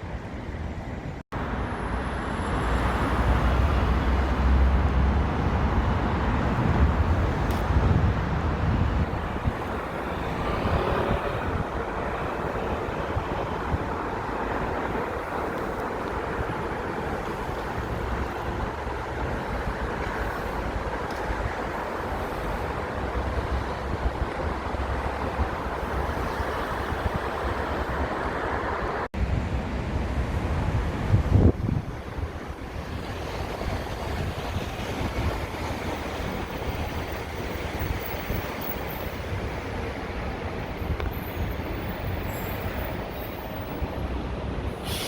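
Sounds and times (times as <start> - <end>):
road traffic rumble: 0.0 - 45.0
wind buffeting microphone: 3.0 - 44.8.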